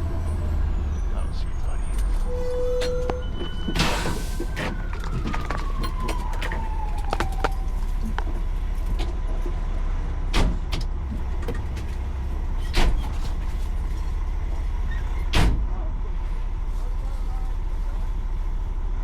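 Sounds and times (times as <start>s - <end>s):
fire engine rumbling: 0.0s - 19.0s
siren winding down: 1.2s - 8.3s.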